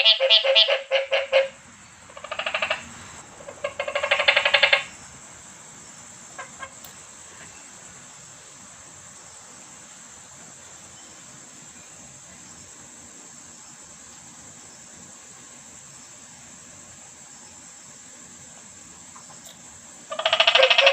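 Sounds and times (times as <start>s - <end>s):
frogs calling: 0.0s - 20.9s.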